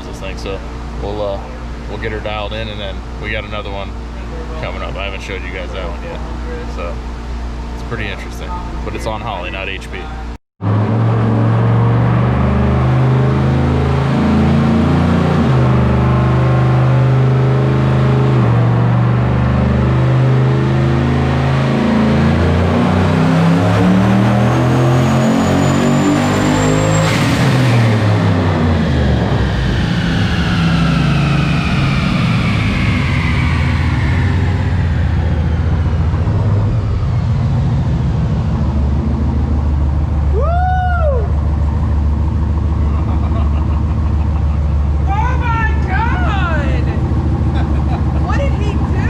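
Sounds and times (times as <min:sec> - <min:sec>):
loud engine running: 0:00.0 - 0:49.0
turbo whine winding down: 0:00.0 - 0:49.0
short rising and falling tone: 0:10.6 - 0:48.2.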